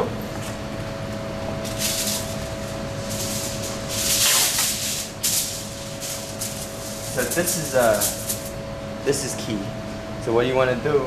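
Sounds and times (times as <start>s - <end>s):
steady low hum: 0.0s - 11.0s
kitchen foil rustling and crinkling: 1.7s - 8.5s.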